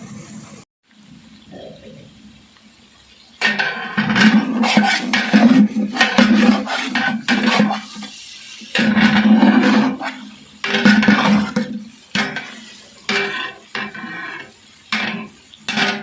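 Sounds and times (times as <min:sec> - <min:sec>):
chicken frying: 0:00.0 - 0:16.0
metal ladle scraping a pan: 0:03.4 - 0:16.0.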